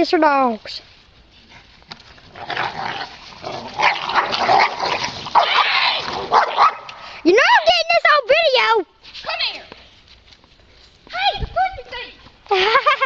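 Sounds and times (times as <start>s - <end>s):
dogs yipping and barking: 3.7s - 6.9s.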